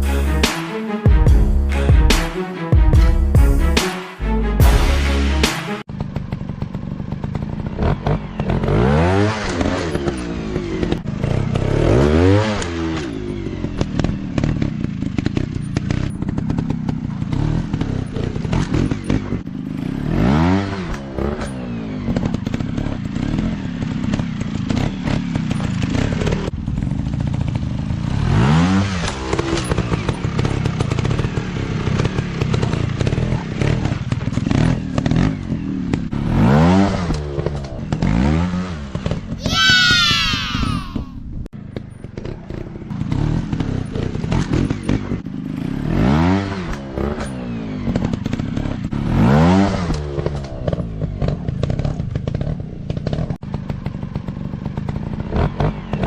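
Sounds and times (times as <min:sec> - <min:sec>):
dirt bike engines revving: 0:27.1 - 0:41.2.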